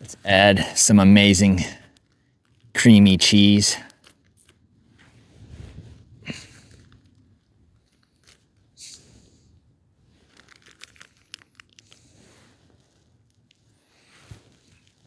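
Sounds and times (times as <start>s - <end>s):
packet ripping and crinkling: 10.2s - 12.0s.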